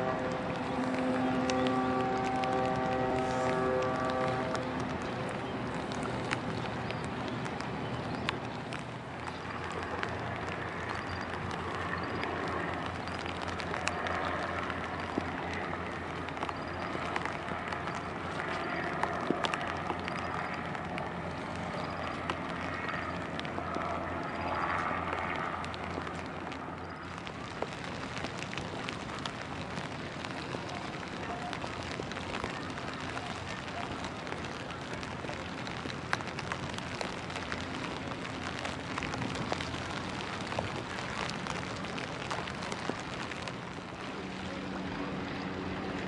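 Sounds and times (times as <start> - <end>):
low steady hum: 0.0 - 8.4
rain and wind on microphone: 0.0 - 46.0
raindrops ticking: 0.0 - 46.0.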